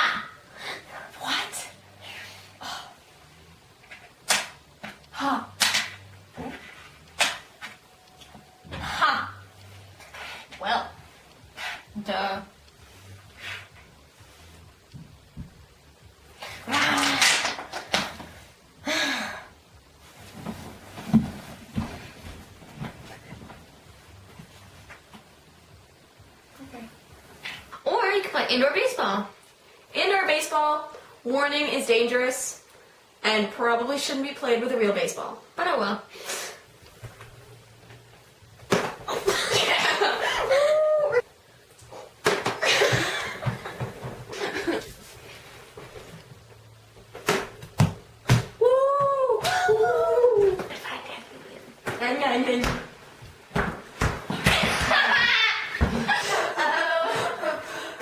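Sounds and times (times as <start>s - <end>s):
girls laughing and squealing: 39.8s - 41.3s, 54.6s - 57.6s.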